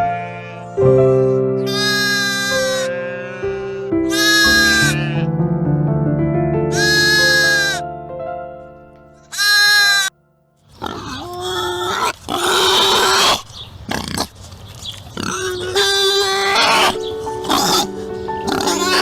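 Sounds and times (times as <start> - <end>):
pigs squealing and grunting: 0.0 - 5.3, 6.8 - 7.8, 9.3 - 10.1, 10.7 - 19.0
background music with held notes: 0.0 - 10.5, 16.6 - 19.0
short pitched bleat: 1.7 - 5.3.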